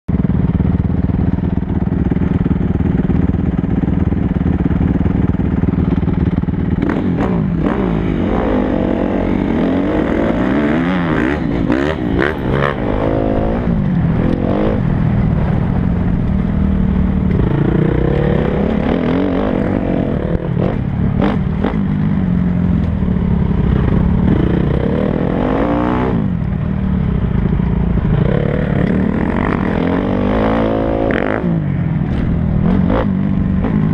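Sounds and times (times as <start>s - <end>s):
motocross bike engines revving: 4.7s - 27.4s, 28.0s - 33.9s.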